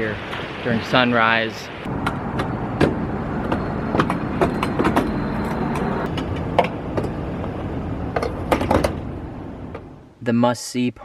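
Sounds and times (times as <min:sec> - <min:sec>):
car road rumble: 0:00.1 - 0:10.2
sharp clicks and knocks: 0:01.9 - 0:07.2, 0:08.1 - 0:09.1.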